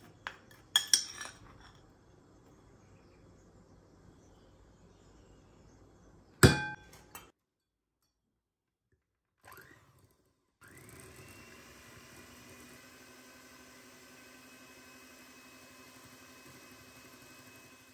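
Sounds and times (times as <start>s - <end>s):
kitchenware clink: 0.2s - 1.9s
small electric motor running: 9.4s - 17.9s.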